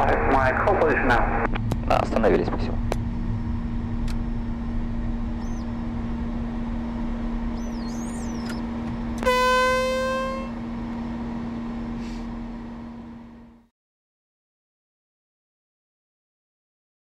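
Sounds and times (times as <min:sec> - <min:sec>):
cockpit hum: 0:00.0 - 0:13.6
horn blast: 0:09.2 - 0:10.6.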